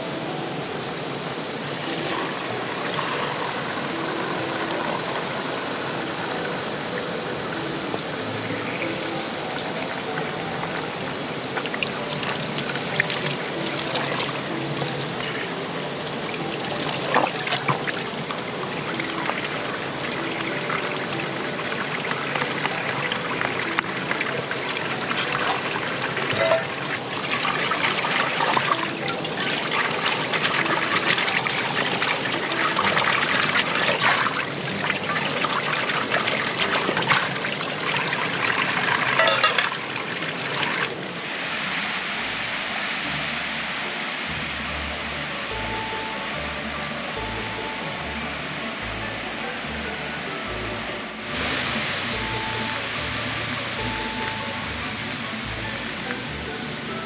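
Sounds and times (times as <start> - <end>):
shallow river trickling: 0.0 - 44.1.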